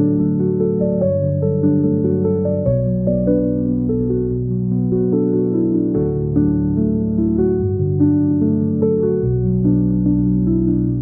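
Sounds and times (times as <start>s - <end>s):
calm new-age music: 0.0s - 11.0s.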